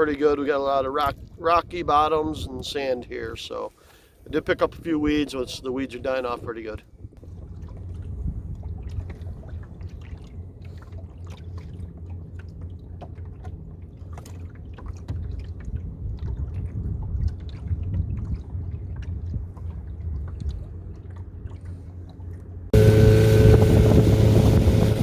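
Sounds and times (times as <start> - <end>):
water sloshing and dripping: 7.1 - 25.0
steady low rumble: 7.2 - 25.0.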